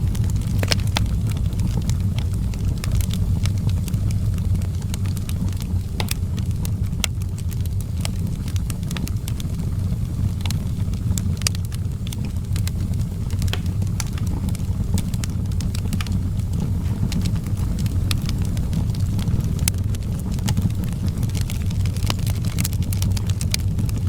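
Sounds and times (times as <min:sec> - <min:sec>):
low fire rumble: 0:00.0 - 0:24.0
wood fire crackling and popping: 0:00.0 - 0:24.0.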